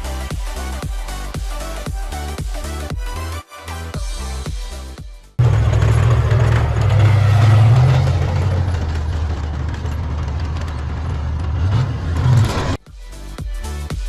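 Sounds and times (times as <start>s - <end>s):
vehicle engine humming: 5.4s - 12.8s.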